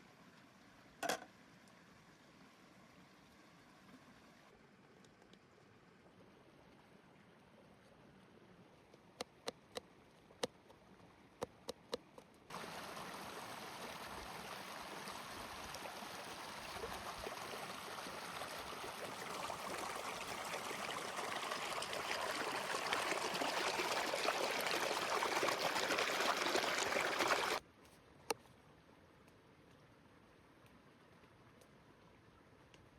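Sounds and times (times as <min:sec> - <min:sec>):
running water rushing: 0:12.5 - 0:27.6.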